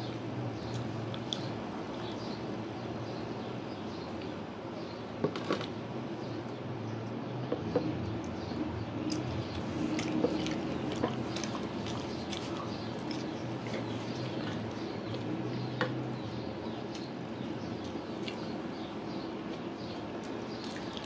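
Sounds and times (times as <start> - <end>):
steady low hum: 0.0 - 21.0
wet chewing and lip-smacking: 9.0 - 15.3, 17.8 - 18.5.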